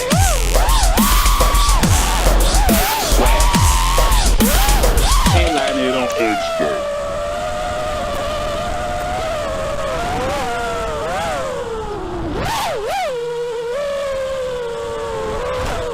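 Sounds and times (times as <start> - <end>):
quadcopter motors whining: 0.0 - 15.9.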